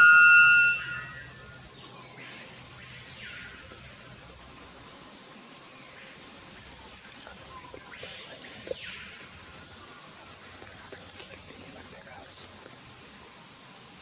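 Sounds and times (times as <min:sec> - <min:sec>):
faint bird calls: 0:00.0 - 0:04.1
high insect drone: 0:00.0 - 0:14.0.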